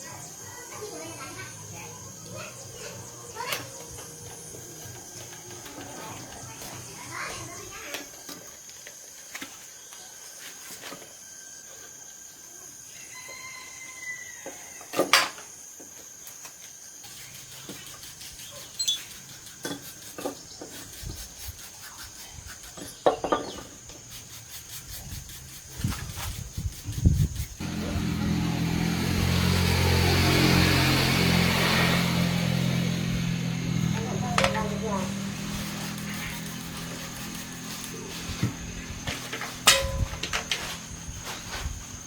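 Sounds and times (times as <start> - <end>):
motor humming: 0.8 - 7.8, 27.6 - 42.0.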